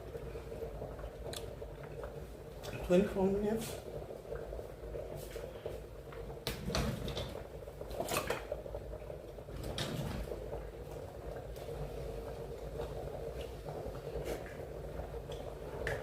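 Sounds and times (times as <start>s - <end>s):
kitchen knocks and clatters: 6.4s - 8.6s, 9.5s - 10.5s.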